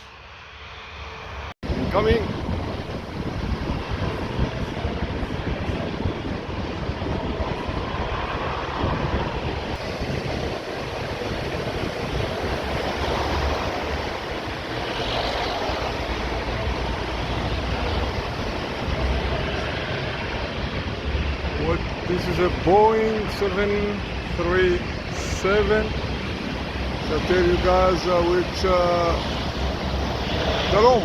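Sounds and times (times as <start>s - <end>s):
jet engines rumbling: 0.0s - 31.0s
wind gusting on microphone: 0.0s - 31.0s.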